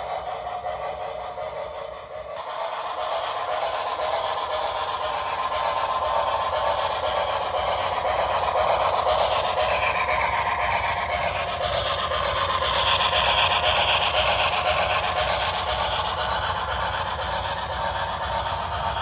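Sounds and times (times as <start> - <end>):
model steam locomotive hissing: 0.0 - 19.0.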